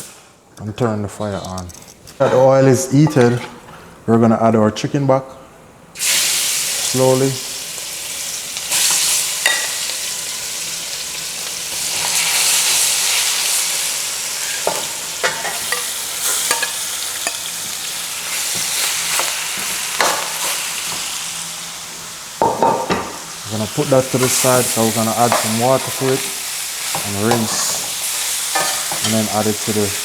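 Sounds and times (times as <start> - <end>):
chicken sizzling in oil: 6.0 - 22.5, 23.2 - 30.0.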